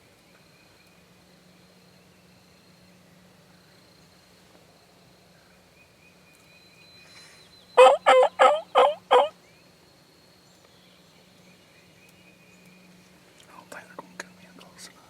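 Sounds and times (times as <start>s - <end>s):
turkey yelps: 7.8s - 9.3s.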